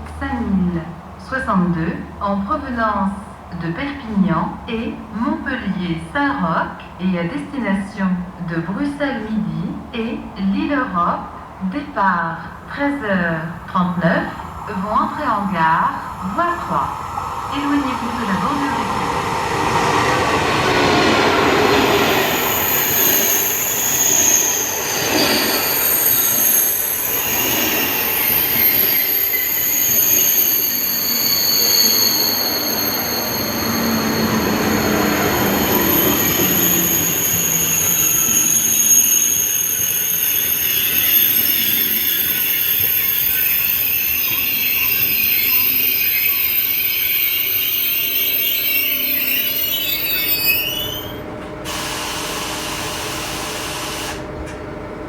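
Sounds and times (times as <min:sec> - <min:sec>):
train running noise: 0:12.5 - 0:55.0
train brakes squealing: 0:19.8 - 0:54.3.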